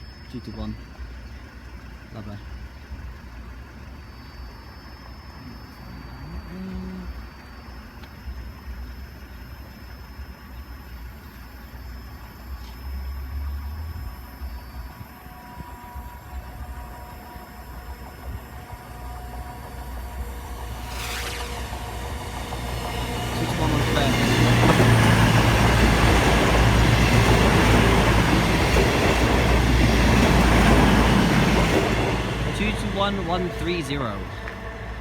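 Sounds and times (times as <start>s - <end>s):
faint steady tones: 0.0s - 35.0s
vehicle engines idling: 15.2s - 35.0s.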